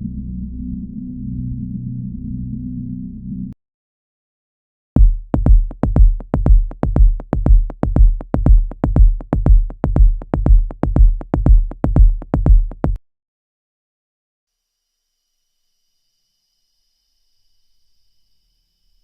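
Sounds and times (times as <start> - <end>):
electronic bass-drum pulse: 5.0 - 13.0.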